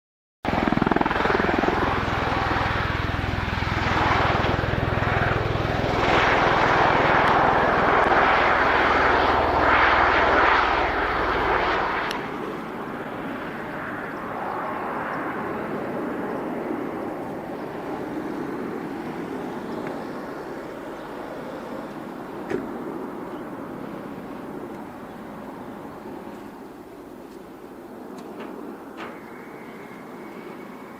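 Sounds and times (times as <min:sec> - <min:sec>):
tiltrotor aircraft drone: 0:00.5 - 0:30.9.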